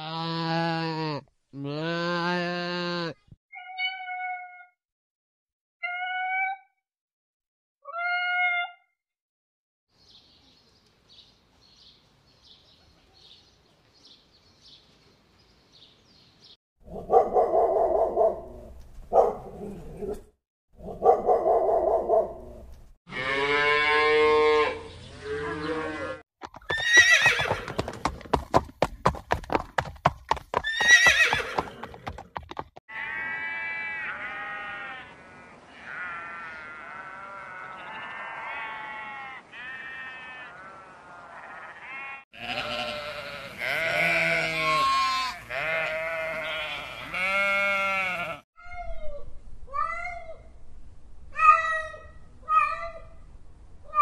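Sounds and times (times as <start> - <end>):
dog barking: 16.9 - 20.2, 20.8 - 22.5
sheep bleating: 23.1 - 26.2, 32.9 - 48.5
horse whinnying: 25.8 - 28.0, 30.6 - 32.2.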